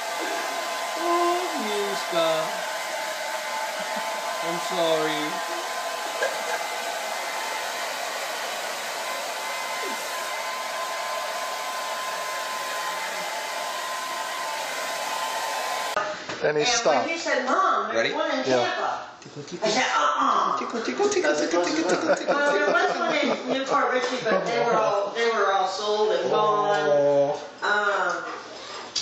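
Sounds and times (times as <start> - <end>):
hair dryer running: 0.0 - 16.0.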